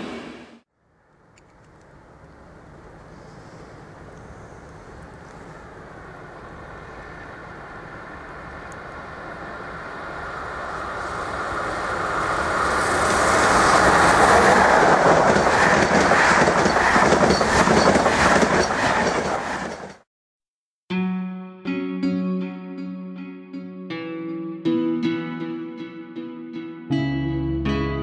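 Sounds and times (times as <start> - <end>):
passenger train passing: 0.0 - 0.6, 2.0 - 20.0.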